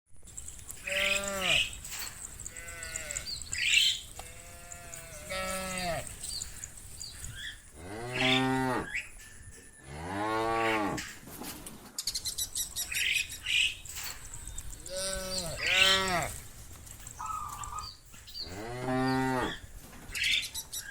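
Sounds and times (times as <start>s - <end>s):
cows mooing: 0.8s - 6.5s, 7.8s - 9.0s, 9.8s - 11.1s, 14.8s - 16.4s, 18.5s - 19.7s.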